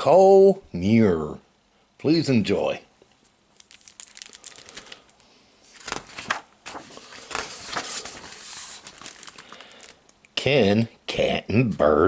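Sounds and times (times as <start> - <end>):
book pages rustling and crinkling: 3.6 - 10.0.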